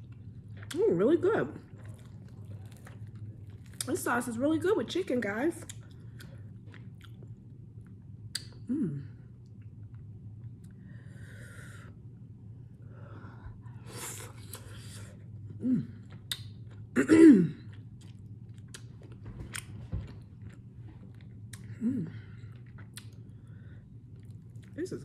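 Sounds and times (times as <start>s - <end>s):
person chewing wetly: 0.0s - 0.9s, 1.6s - 3.9s, 5.6s - 8.6s, 13.9s - 17.0s, 17.6s - 25.0s.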